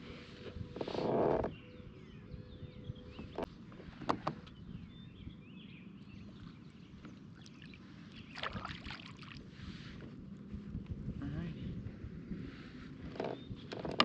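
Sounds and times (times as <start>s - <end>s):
birds chirping faintly: 0.1s - 9.4s.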